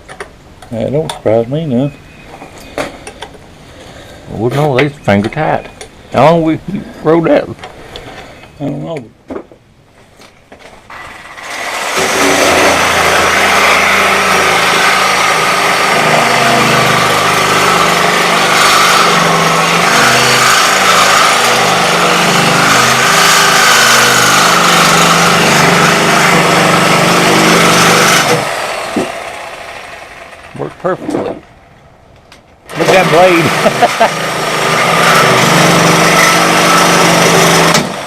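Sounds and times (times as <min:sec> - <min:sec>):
small motor running: 0:11.0 - 0:30.5.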